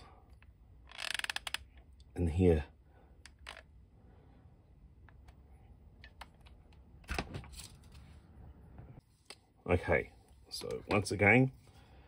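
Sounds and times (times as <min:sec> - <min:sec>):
plastic toy parts clicking: 0:00.4 - 0:01.8.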